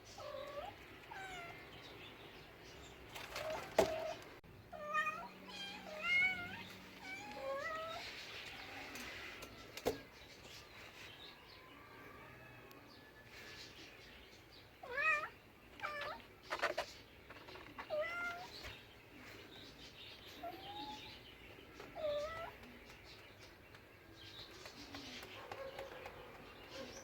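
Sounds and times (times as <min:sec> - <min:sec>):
cat meowing: 0:00.2 - 0:01.6, 0:04.7 - 0:08.0, 0:14.8 - 0:16.3, 0:17.8 - 0:18.5.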